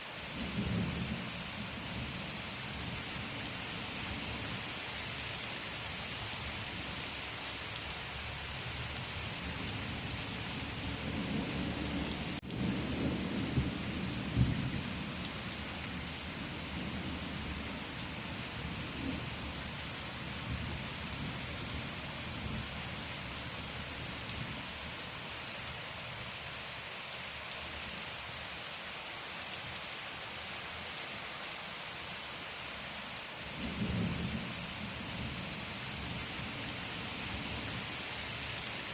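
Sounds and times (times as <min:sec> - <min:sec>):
steady rain falling: 0:00.0 - 0:38.9
low rumbles of thunder: 0:10.8 - 0:19.7, 0:33.5 - 0:37.9.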